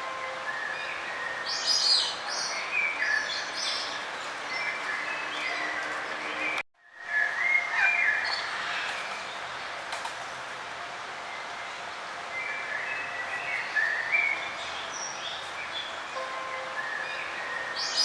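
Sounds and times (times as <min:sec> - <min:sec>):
outdoor ambience hiss: 0:06.8 - 0:18.0
small songbirds chirping: 0:12.3 - 0:18.0.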